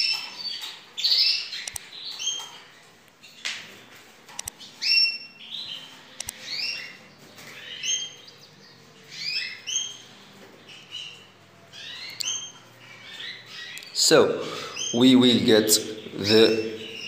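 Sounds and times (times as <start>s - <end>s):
canaries chirping: 0.0s - 17.0s
light clicks: 1.6s - 1.9s, 4.3s - 4.6s.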